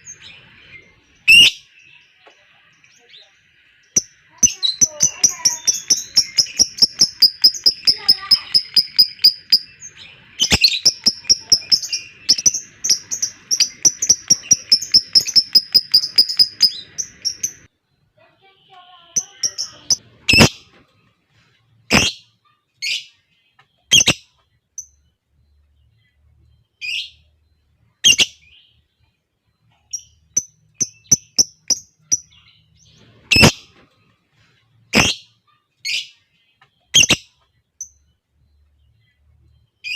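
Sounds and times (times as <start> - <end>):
sharp bird chirps: 0.0 - 18.0, 19.2 - 20.8, 21.8 - 33.8, 34.7 - 39.9
lovebirds chattering trill: 0.0 - 20.8, 21.9 - 23.2, 29.7 - 33.9, 34.8 - 38.1.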